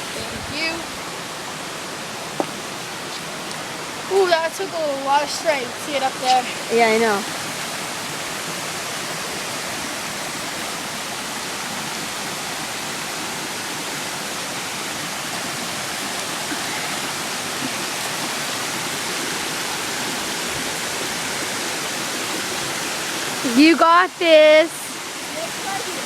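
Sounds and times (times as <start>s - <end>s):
small waterfall rushing: 0.0s - 26.0s.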